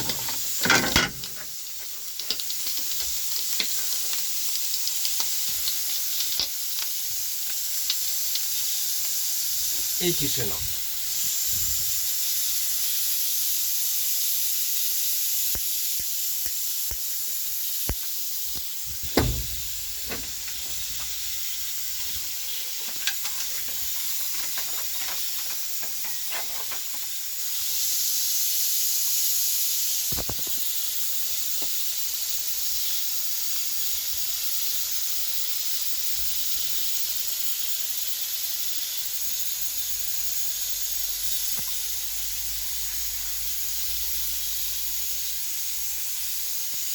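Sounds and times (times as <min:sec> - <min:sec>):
steam hissing: 0:00.0 - 0:46.9
knocks in locomotive cab: 0:19.1 - 0:20.6.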